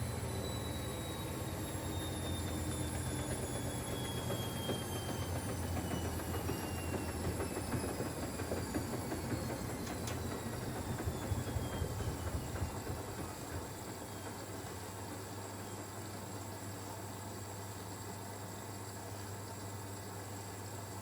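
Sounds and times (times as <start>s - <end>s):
washing machine running: 0.0s - 21.0s.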